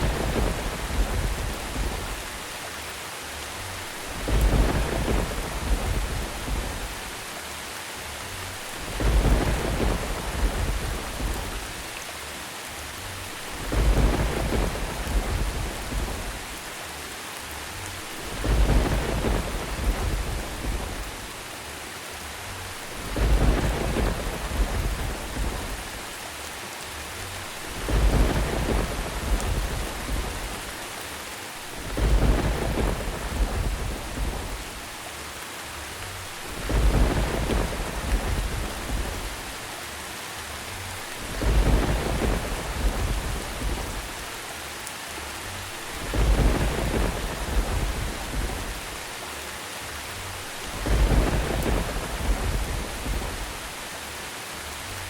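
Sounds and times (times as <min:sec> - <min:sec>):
thunder rumbling: 0:00.0 - 0:02.6, 0:03.8 - 0:07.3, 0:08.4 - 0:12.0, 0:13.2 - 0:16.7, 0:17.9 - 0:21.4, 0:22.7 - 0:26.1, 0:27.4 - 0:31.0, 0:31.6 - 0:35.0, 0:36.2 - 0:39.8, 0:41.0 - 0:44.4, 0:45.6 - 0:49.2, 0:50.2 - 0:53.9
steady rain: 0:00.0 - 0:55.0.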